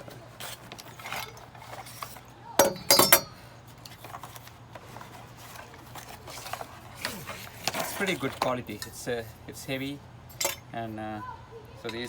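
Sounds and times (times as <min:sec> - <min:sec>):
metal curtain rod clanking: 0:00.0 - 0:03.4.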